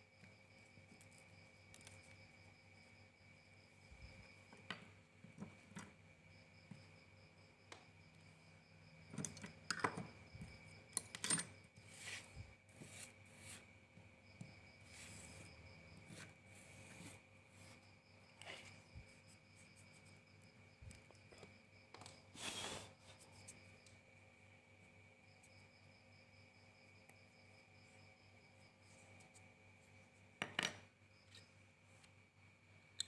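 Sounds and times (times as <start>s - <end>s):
faint crickets chirping: 0.0s - 33.0s
small metal parts clicking: 10.9s - 11.6s.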